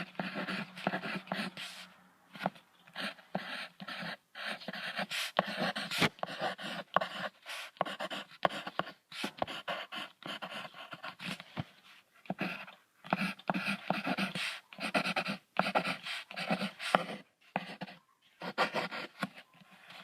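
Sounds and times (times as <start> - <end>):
animal huffing and panting: 12.2 - 17.9.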